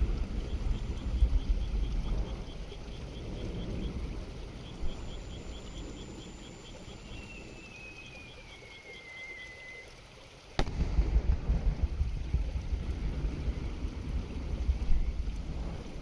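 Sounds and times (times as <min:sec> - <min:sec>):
faint rhythmic chirping: 0:00.0 - 0:10.6
firework bang: 0:10.6 - 0:12.0
low rumble: 0:10.6 - 0:16.0.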